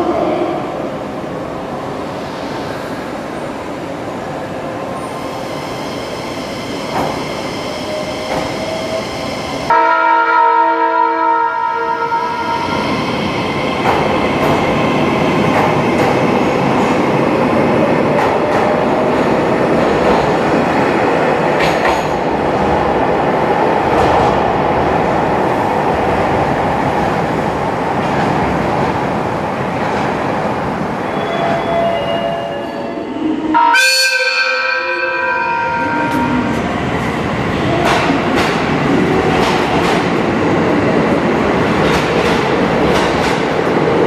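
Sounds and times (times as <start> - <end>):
train wheels on rails: 1.5 - 9.8, 12.3 - 32.1, 35.8 - 44.0
train horn chord: 9.7 - 12.6, 33.5 - 36.4.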